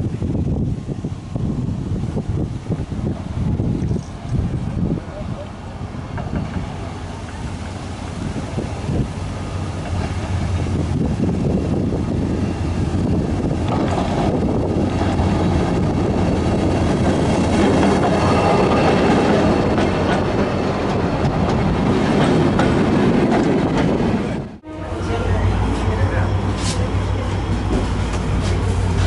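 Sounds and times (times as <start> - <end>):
diesel locomotive rumble: 0.0 - 29.0
passenger coaches rolling by: 0.0 - 29.0.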